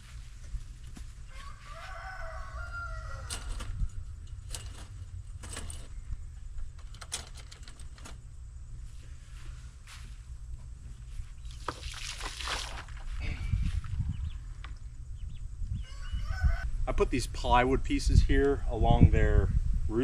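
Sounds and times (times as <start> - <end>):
steady low rumble: 3.1 - 11.7, 12.7 - 15.9, 16.6 - 20.0
poultry wavering call: 15.8 - 16.6.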